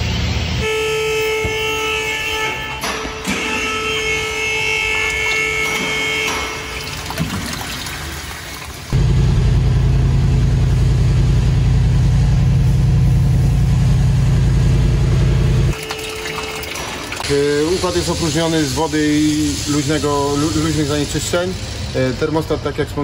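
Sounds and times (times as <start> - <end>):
car engine low rumble: 8.9 - 15.8.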